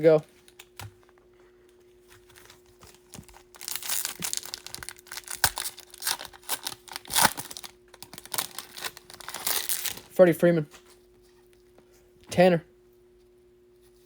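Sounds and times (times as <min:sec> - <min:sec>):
foil wrapper tearing and crinkling: 0:02.2 - 0:10.1.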